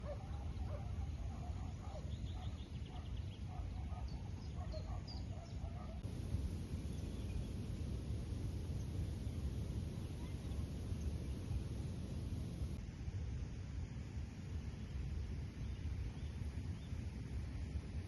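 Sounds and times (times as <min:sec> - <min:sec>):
steady low rumble: 0:06.0 - 0:12.8.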